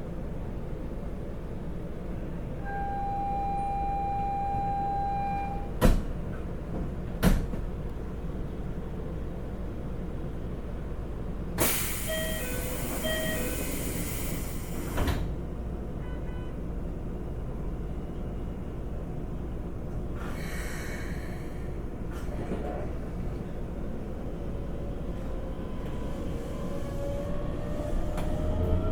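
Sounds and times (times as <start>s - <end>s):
two-tone door chime: 2.7s - 5.7s, 12.1s - 13.6s
air hiss of train doors: 11.6s - 15.3s, 20.1s - 22.6s.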